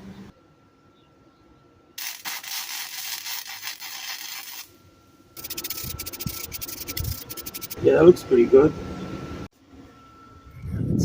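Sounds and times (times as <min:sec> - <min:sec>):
welder arc crackling: 0:02.0 - 0:04.7, 0:05.4 - 0:07.8.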